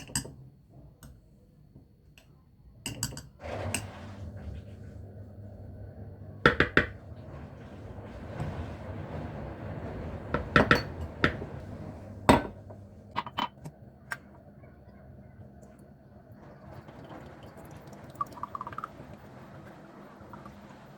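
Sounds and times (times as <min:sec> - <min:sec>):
dishes and utensils clinking: 0:02.8 - 0:03.9, 0:10.4 - 0:11.5, 0:12.3 - 0:14.3.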